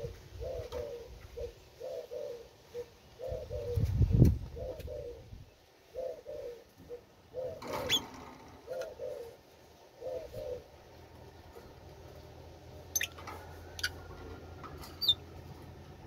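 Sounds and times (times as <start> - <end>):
bird cooing: 0.0 - 11.7, 14.8 - 15.2.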